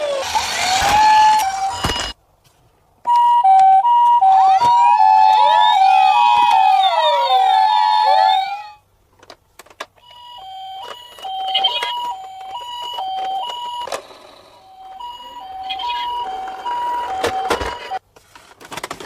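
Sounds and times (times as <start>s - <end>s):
wailing sirens: 0.0s - 2.0s, 3.5s - 8.8s
electronic two-tone siren: 0.0s - 2.1s, 3.4s - 8.8s, 14.6s - 18.0s.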